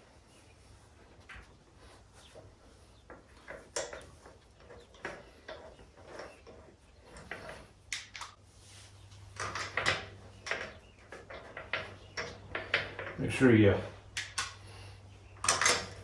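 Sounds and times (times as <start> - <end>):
metallic clicks of wheel bolts: 3.1 - 8.4, 14.0 - 14.8, 15.4 - 16.0.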